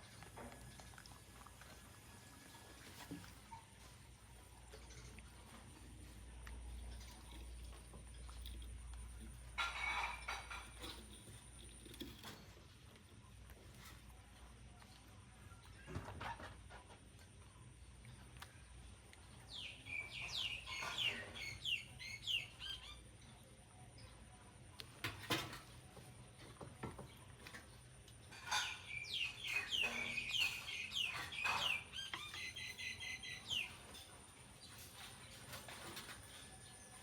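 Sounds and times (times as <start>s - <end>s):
high-pitched chirping calls: 19.5s - 23.1s, 28.5s - 33.8s.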